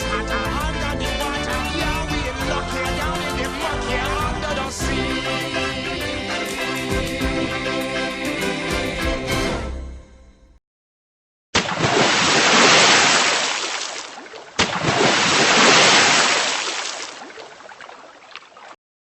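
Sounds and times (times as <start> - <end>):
rushing sea water: 11.6 - 18.8.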